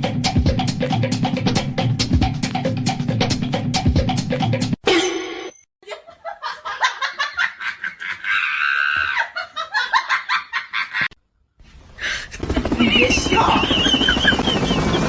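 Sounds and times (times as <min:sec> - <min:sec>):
person laughing: 0:05.8 - 0:11.1, 0:12.0 - 0:14.9.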